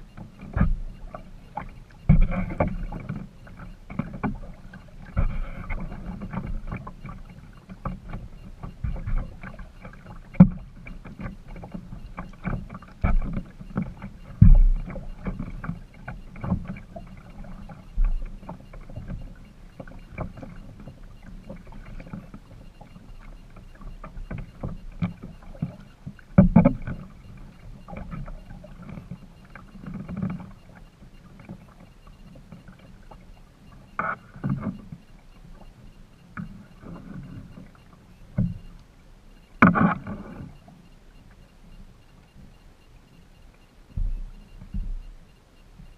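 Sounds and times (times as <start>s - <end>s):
water swishing and dripping off paddle: 0.0s - 45.9s
paddle knocking against boat: 0.2s - 31.8s, 39.6s - 40.3s, 44.0s - 45.2s.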